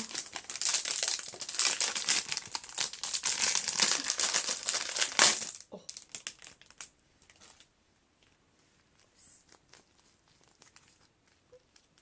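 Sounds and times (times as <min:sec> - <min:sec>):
packaging crinkling and tearing: 0:00.0 - 0:07.7, 0:09.5 - 0:12.0
packaging rustle: 0:00.0 - 0:07.7.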